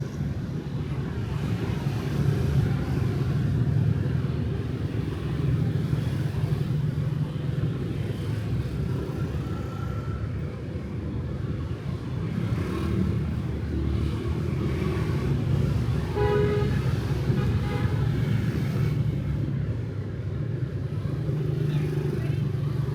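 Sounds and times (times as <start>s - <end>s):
motorbikes and cars passing: 0.0s - 22.9s
vehicle horn: 16.1s - 16.8s.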